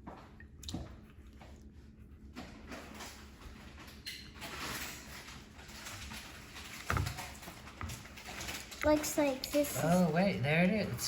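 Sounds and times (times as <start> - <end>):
water sloshing in a container: 0.0 - 1.7.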